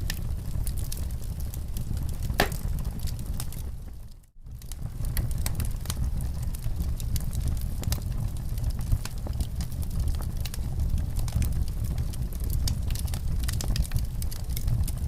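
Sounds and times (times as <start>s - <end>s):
fireplace fire crackling and popping: 0.0s - 15.0s.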